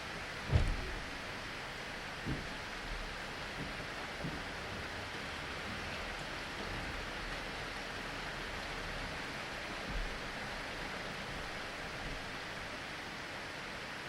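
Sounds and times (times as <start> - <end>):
steady rain falling: 0.0 - 14.0
brief low thump: 0.5 - 1.2.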